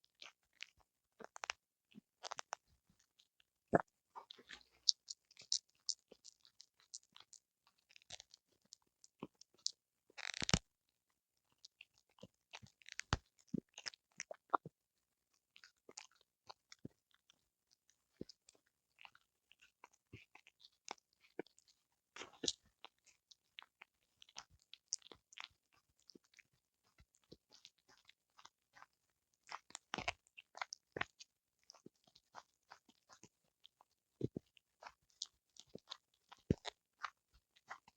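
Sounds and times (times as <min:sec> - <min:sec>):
dog chewing and crunching: 0:02.2 - 0:02.6, 0:04.2 - 0:10.6, 0:19.0 - 0:37.9.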